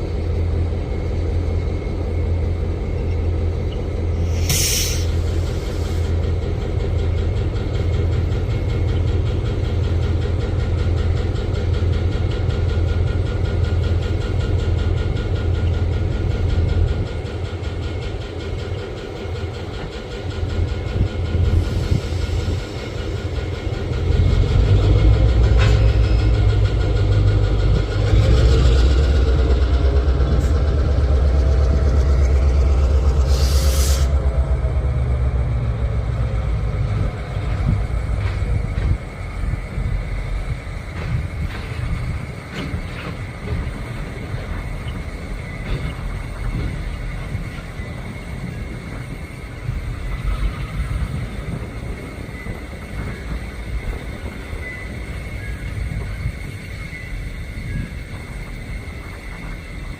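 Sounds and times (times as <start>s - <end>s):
diesel locomotive engine rumble: 0.0s - 59.9s.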